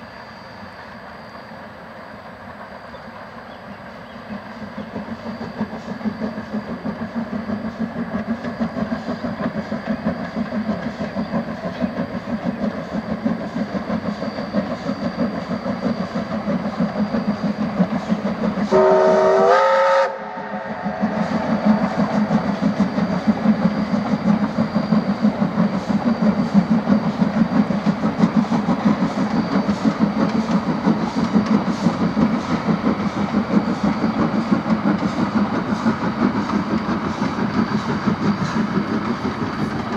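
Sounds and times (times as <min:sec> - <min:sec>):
steam locomotive exhaust chuffing: 0:00.0 - 0:39.9
steam whistle blast: 0:18.7 - 0:21.6.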